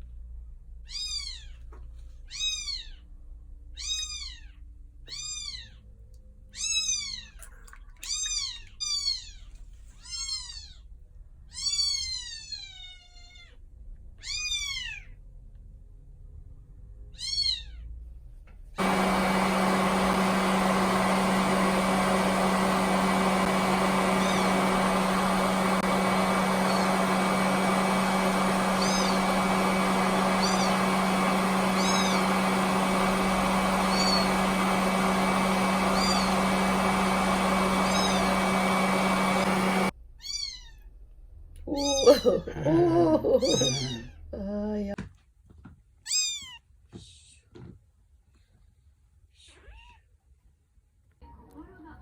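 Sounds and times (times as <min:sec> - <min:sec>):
loud steady noise with hum: 0:18.8 - 0:39.9
kitten mewing: 0:41.7 - 0:44.2.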